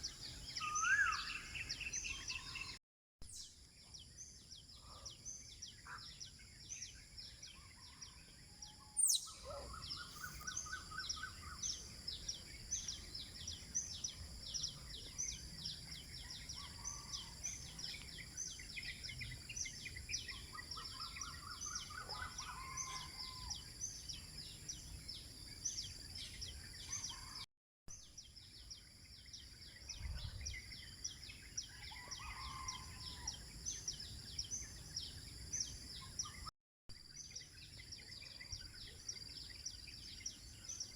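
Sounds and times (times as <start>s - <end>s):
birds chirping: 9.0s - 27.4s.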